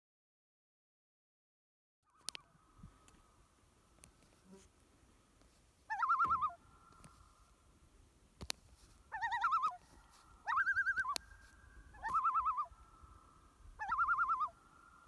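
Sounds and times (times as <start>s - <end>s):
faint steady tone: 2.2s - 15.0s
loon tremolo call: 5.9s - 7.0s, 9.1s - 9.8s, 10.4s - 15.0s.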